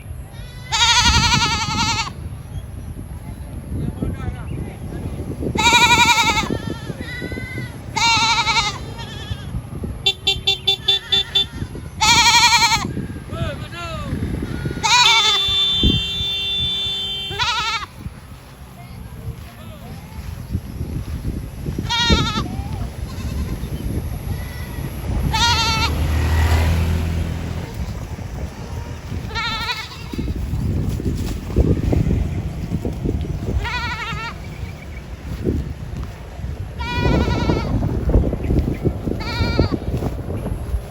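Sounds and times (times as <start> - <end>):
livestock bleating: 0.3 - 2.2, 5.6 - 9.6, 10.7 - 13.0, 14.1 - 18.0, 21.8 - 26.1, 28.6 - 30.4, 33.5 - 35.4, 36.8 - 37.8, 39.1 - 39.9.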